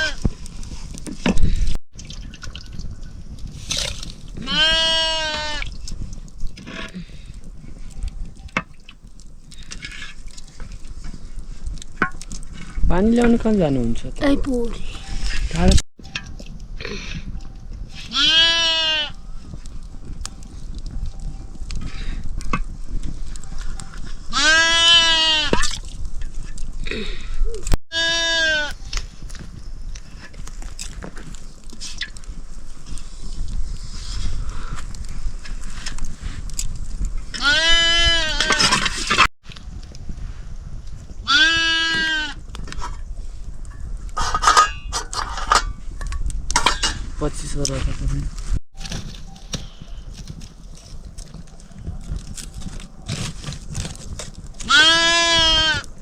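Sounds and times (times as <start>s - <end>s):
goat bleating: 4.4s - 5.6s, 18.1s - 19.2s, 24.3s - 25.5s, 27.9s - 28.7s, 37.4s - 38.4s, 41.3s - 42.4s, 54.6s - 55.8s.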